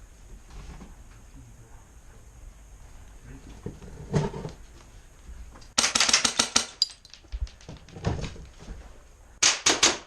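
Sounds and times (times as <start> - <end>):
airsoft gun firing bursts: 5.8 - 6.7.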